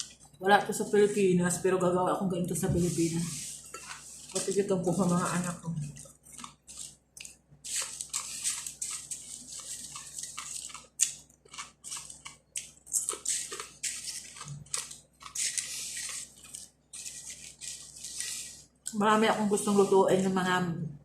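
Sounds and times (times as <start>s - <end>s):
chewing crispy flatbread: 3.2s - 18.9s.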